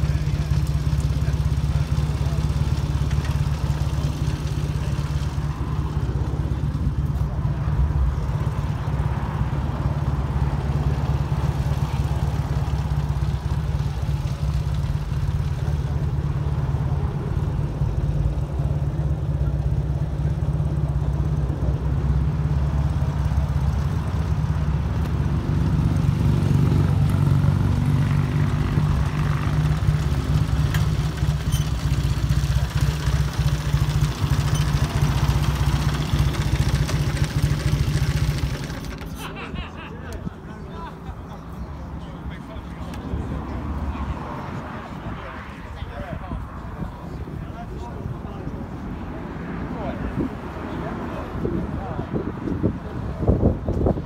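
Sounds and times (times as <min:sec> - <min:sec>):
motorcycle engine running: 0:00.0 - 0:39.5.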